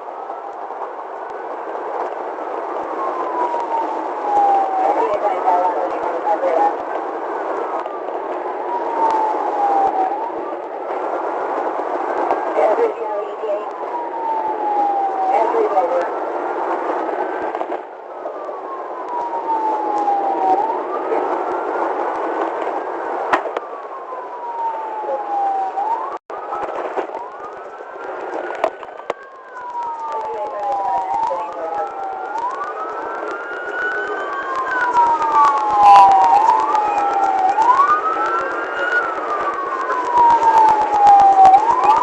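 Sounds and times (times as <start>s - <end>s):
police siren wailing: 0.0s - 42.0s.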